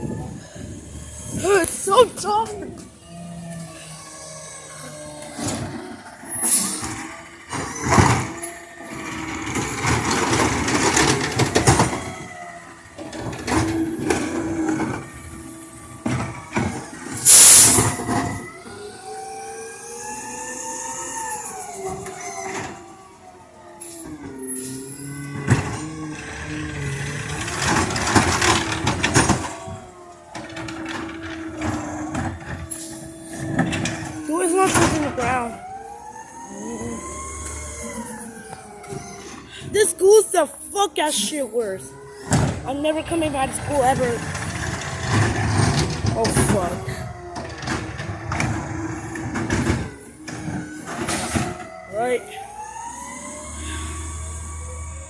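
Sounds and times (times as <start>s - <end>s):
garbage truck engine and hydraulics: 0.0s - 55.0s
short hisses: 17.3s - 17.8s.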